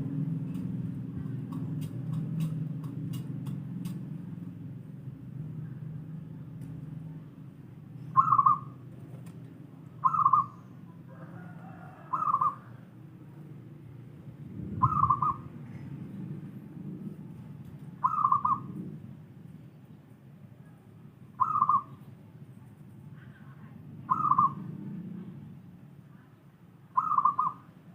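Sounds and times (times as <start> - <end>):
dove cooing: 8.1 - 8.8, 10.0 - 12.8, 14.7 - 15.9, 18.0 - 19.0, 21.4 - 22.0, 24.1 - 24.8, 27.0 - 27.7.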